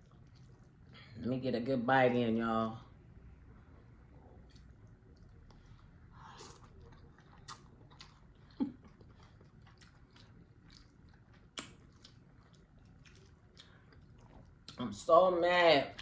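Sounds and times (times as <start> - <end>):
chewing noodles: 0.0 - 1.1, 4.0 - 14.8
wet mouth clicks: 10.7 - 12.2.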